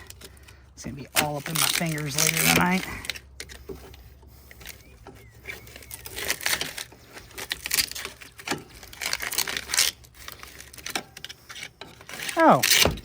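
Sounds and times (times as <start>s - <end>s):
fiberglass tape being torn off: 5.6s - 13.0s.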